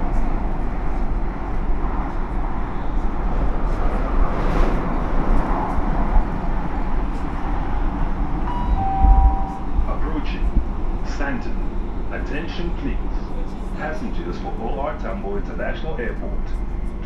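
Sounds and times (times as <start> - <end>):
train carriage rumble: 0.0 - 17.0
two-note electronic chime: 8.5 - 9.8.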